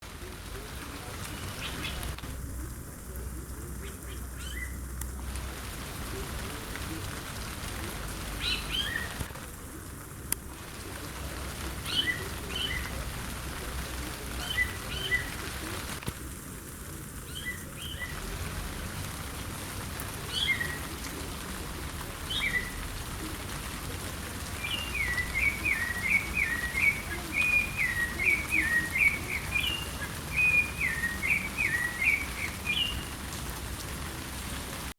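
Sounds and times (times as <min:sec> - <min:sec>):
rain hissing: 0:00.0 - 0:34.9
thrush singing whistled phrases: 0:14.4 - 0:15.4, 0:24.6 - 0:33.1.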